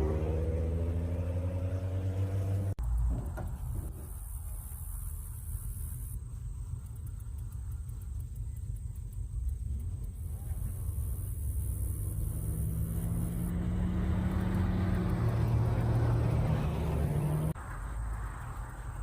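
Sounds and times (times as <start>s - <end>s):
car engine driving by: 0.0s - 6.2s, 10.2s - 19.0s.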